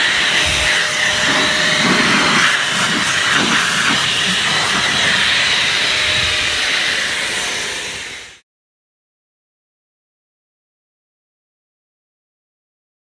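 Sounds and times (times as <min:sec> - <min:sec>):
spraying hiss: 0:00.0 - 0:08.4.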